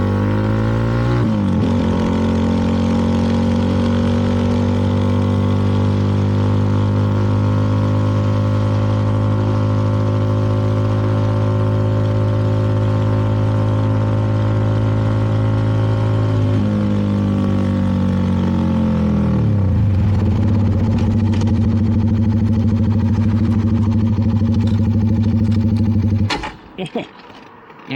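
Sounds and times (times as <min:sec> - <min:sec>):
motorcycle engine running: 0:00.0 - 0:26.4.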